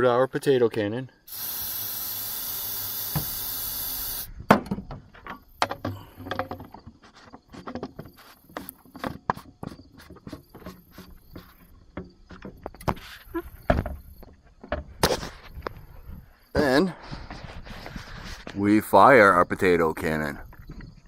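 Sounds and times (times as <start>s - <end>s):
aerosol spray hiss: 1.3s - 4.3s
clicks and knocks of handling: 4.6s - 13.0s.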